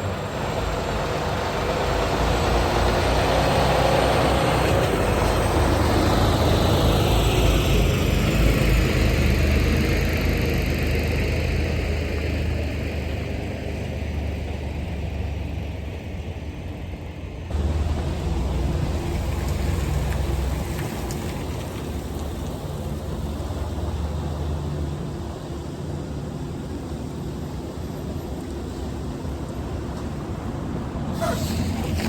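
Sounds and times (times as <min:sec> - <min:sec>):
truck diesel engine running: 0:17.5 - 0:20.7
broad hiss: 0:31.1 - 0:32.0.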